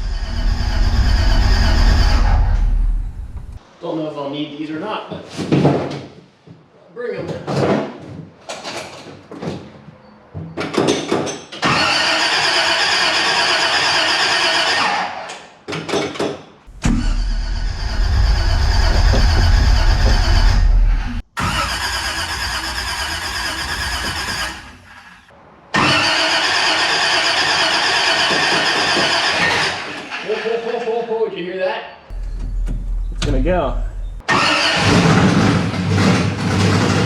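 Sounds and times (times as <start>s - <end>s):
starter cranking engine: 11.6s - 15.0s, 16.8s - 24.8s, 25.8s - 30.2s, 34.3s - 37.0s.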